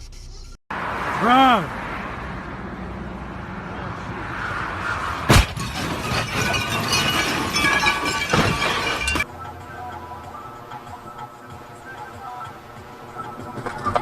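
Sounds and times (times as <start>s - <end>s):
car crash impact: 4.9s - 9.3s
clattering debris: 5.0s - 9.3s
breaking glass: 5.1s - 9.3s.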